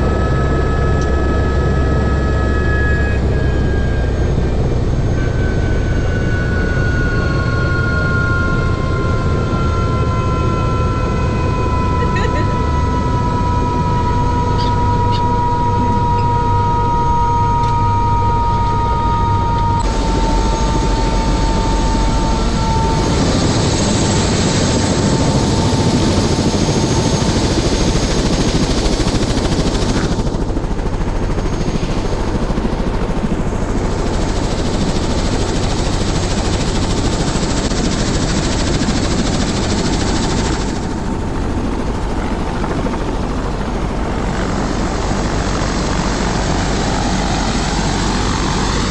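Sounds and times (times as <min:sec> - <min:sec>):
helicopter rotor and engine: 0:00.0 - 0:48.9
thin high whine: 0:00.2 - 0:28.1.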